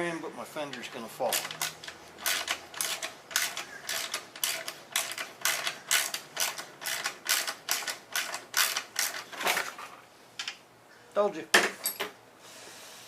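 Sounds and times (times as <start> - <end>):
ratchet wrench clicking: 1.3 - 9.2.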